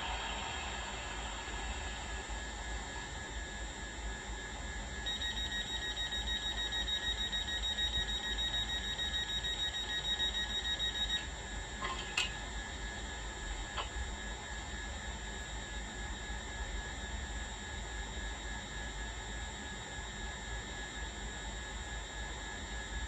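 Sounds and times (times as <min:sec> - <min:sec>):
train idling hum: 0:00.0 - 0:03.3
rapid electronic warning beeps: 0:05.0 - 0:11.3.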